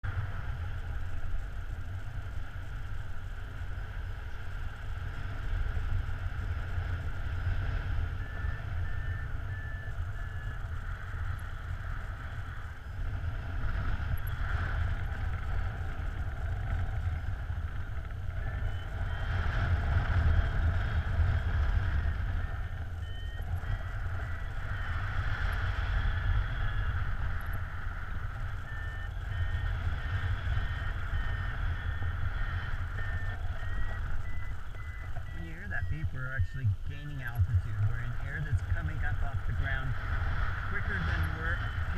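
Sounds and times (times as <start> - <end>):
wind buffeting microphone: 0.0 - 41.9
short electronic beeps: 7.9 - 13.0, 22.0 - 25.1, 26.4 - 39.9, 40.7 - 41.9.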